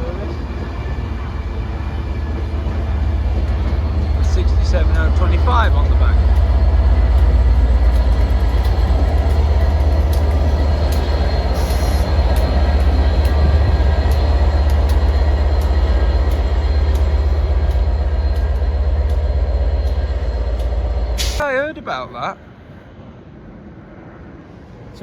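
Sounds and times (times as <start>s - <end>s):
train rumbling past: 0.0s - 25.0s
wheels clicking over rail joints: 2.7s - 21.4s.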